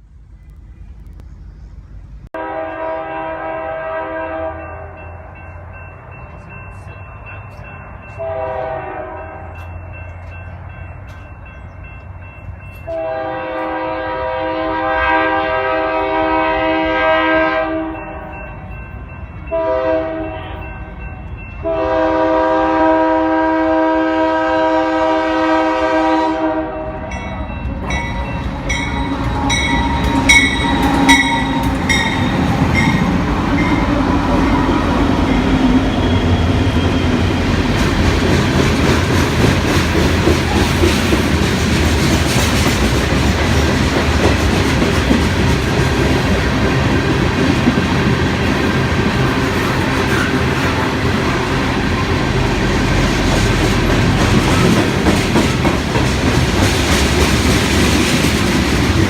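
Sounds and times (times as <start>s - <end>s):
freight cars rumbling: 0.0s - 3.0s, 26.8s - 59.0s
locomotive air horn blasts: 2.4s - 5.0s, 8.2s - 9.6s, 12.9s - 18.3s, 19.5s - 20.8s, 21.6s - 27.3s.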